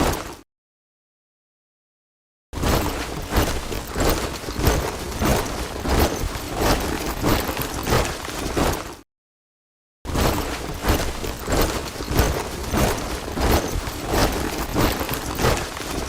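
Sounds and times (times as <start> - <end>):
soldiers marching in step: 2.8 - 8.8, 10.3 - 16.0.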